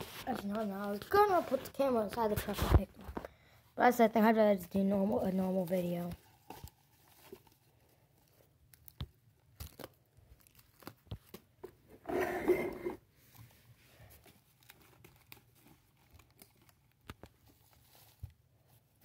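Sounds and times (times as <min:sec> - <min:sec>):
rustling scrape: 0:00.0 - 0:03.0, 0:12.0 - 0:14.3.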